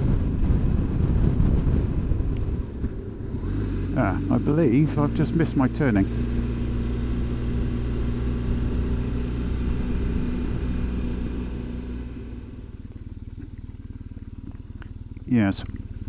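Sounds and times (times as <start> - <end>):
motorcycle engine idling: 0.0 - 16.0
wind and road noise: 0.0 - 16.0.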